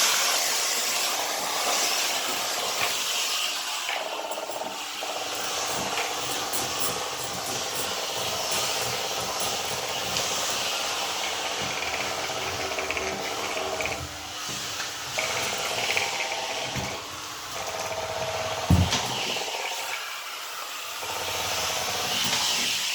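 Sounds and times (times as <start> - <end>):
steam hissing: 0.0 - 22.9
motor humming: 2.0 - 3.1, 4.0 - 19.2.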